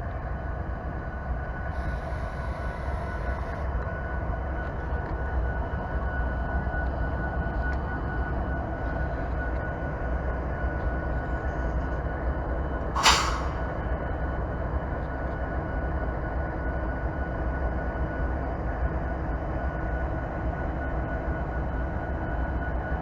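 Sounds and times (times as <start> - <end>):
train rumbling: 8.8 - 15.0
short sharp hiss: 13.0 - 13.8.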